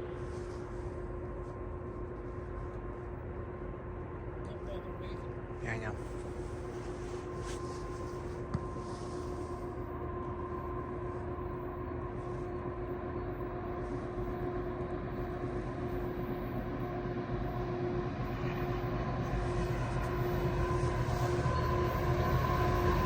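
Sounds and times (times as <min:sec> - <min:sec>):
freight train rumbling: 0:08.0 - 0:23.0.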